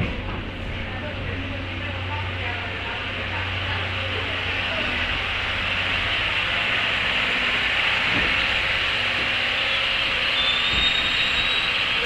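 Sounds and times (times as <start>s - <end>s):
train wheels rushing on rail: 0.0s - 12.0s.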